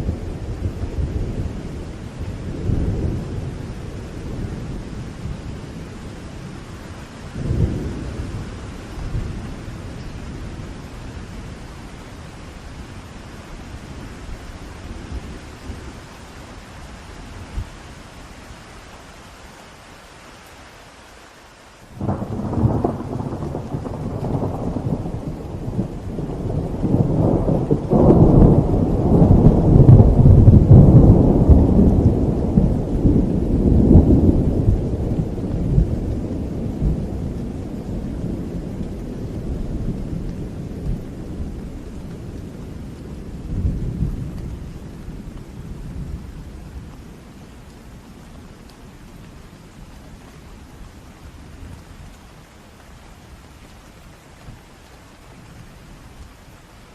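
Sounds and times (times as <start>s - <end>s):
steady rain: 0.0s - 56.9s
rolling thunder: 22.0s - 47.2s.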